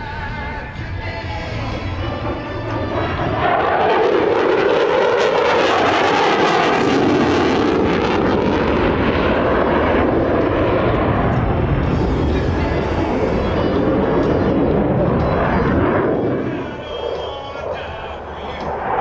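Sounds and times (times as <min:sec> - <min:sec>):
jet engine roaring: 0:00.8 - 0:19.0.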